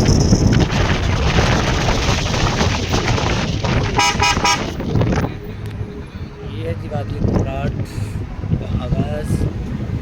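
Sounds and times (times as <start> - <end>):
moving vehicle noise: 0.0 - 10.0
wind buffeting microphone: 0.0 - 10.0
vehicle horn tooting: 4.0 - 4.8.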